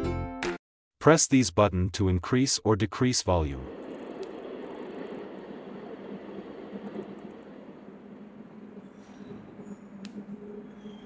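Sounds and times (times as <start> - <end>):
steady noise from speaker: 3.5 - 10.8.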